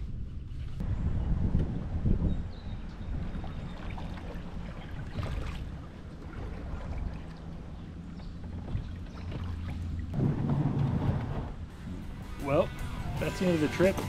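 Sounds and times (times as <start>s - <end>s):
wind on microphone: 0.0s - 11.6s
water splashing around canoe: 3.0s - 12.0s.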